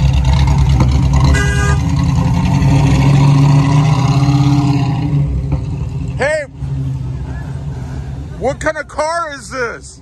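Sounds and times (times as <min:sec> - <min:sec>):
car engine running: 0:00.0 - 0:03.8.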